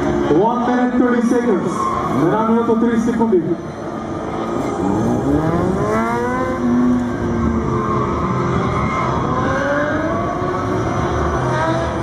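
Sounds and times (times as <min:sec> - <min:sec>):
motorcycle engine revving hard: 0:04.7 - 0:12.0.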